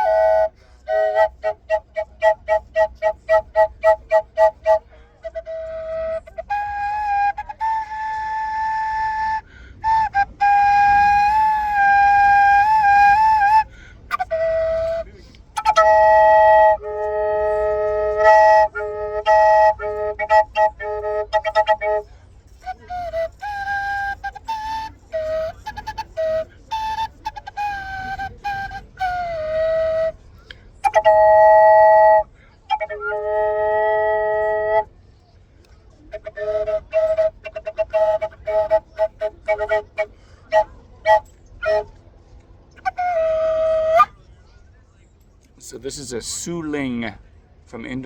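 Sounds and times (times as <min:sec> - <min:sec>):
flute drone note: 0:00.0 - 0:22.0, 0:22.6 - 0:30.2
wooden flute melody: 0:00.0 - 0:44.7.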